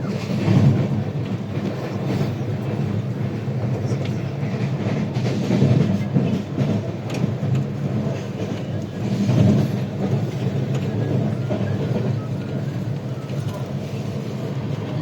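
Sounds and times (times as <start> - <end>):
rail joint clicks: 0.0 - 15.0
train wheels rumbling on track: 0.0 - 15.0.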